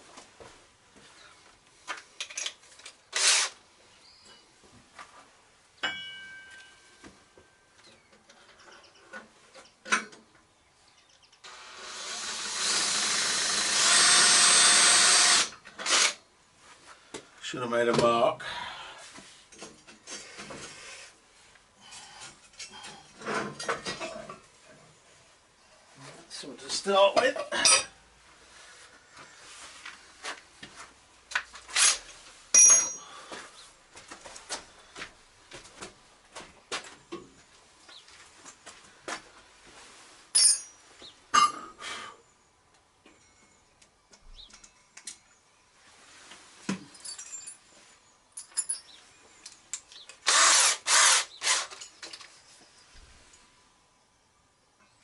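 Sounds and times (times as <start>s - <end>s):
power tool whirring: 3.1s - 3.6s, 11.4s - 16.2s, 50.2s - 51.8s
ringing metal clink: 5.8s - 7.8s, 32.6s - 33.1s, 40.3s - 40.8s
metal tools clinking: 27.6s - 28.0s, 32.0s - 33.2s, 40.3s - 41.6s, 46.9s - 47.8s, 48.4s - 49.6s.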